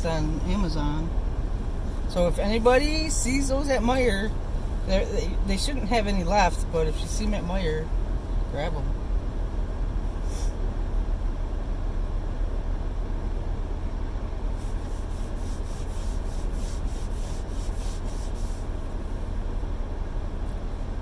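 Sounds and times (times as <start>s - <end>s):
road and engine rumble in car: 0.0s - 21.0s
rhythmic rubbing or scraping: 14.6s - 19.2s.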